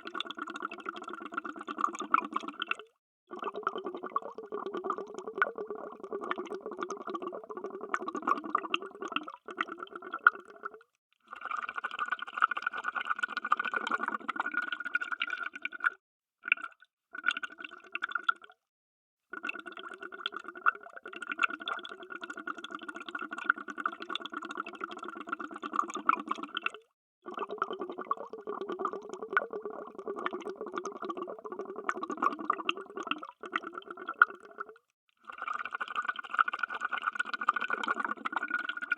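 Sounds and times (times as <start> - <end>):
underwater bubbling: 0.0 - 10.9, 19.4 - 34.8, 35.4 - 38.9.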